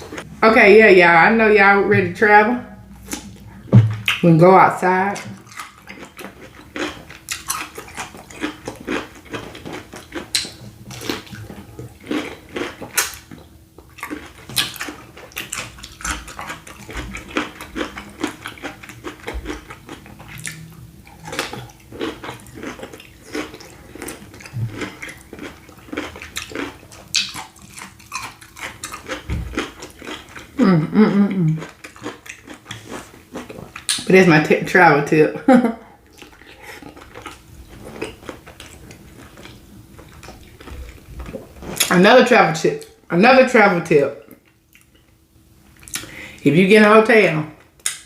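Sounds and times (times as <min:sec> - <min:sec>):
faint steady hum: 0:00.0 - 0:48.0
person chewing with wet smacks: 0:02.9 - 0:04.3, 0:05.2 - 0:30.6, 0:31.3 - 0:34.1, 0:36.0 - 0:41.9, 0:44.2 - 0:46.2.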